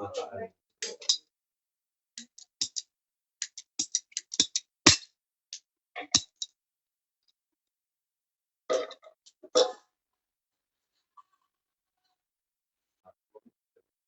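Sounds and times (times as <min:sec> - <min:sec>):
ratcheting pipe cutter clicking: 0:02.2 - 0:02.8, 0:03.4 - 0:05.1.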